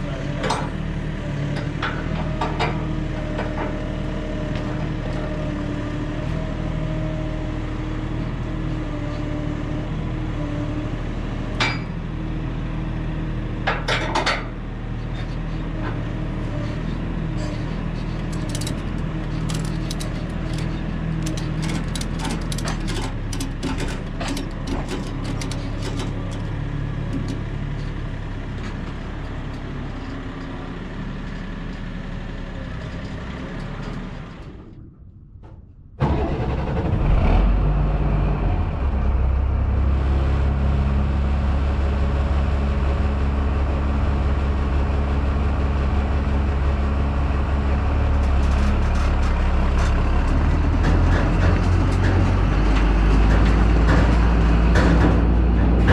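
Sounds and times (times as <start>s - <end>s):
deep engine drone: 0.0s - 55.9s
vehicle engine running: 0.0s - 55.9s
rattling clicks: 18.1s - 27.5s.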